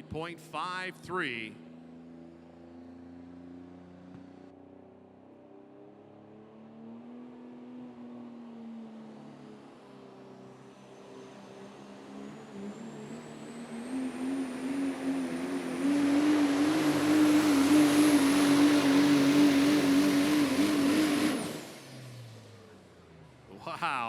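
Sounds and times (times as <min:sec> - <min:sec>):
diesel truck engine running hard: 0:00.0 - 0:04.4, 0:09.4 - 0:24.0.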